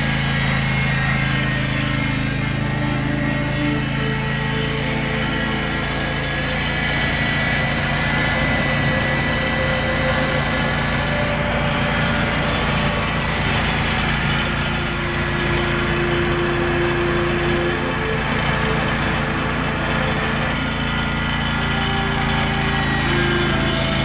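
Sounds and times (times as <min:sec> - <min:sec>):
chainsaw engine running: 0:00.0 - 0:24.0.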